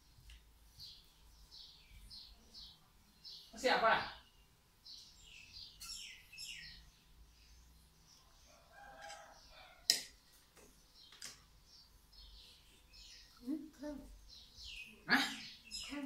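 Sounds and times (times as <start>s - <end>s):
faint bird chirping: 0.0s - 16.0s.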